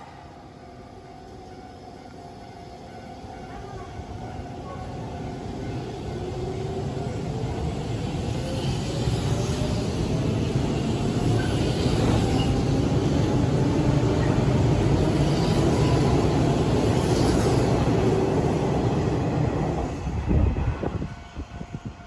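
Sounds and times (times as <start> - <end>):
train wheels rumbling on rails: 2.8 - 22.0.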